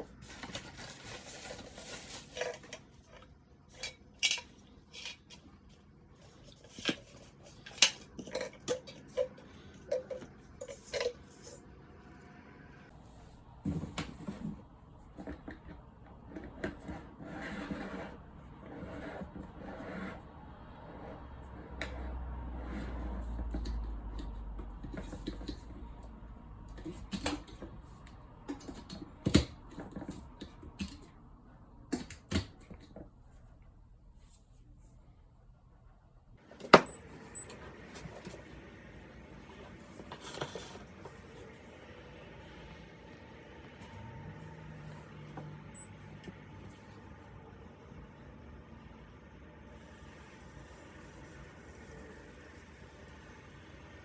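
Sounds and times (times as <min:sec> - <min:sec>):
kettle parts clinking and rattling: 0:06.5 - 0:11.7.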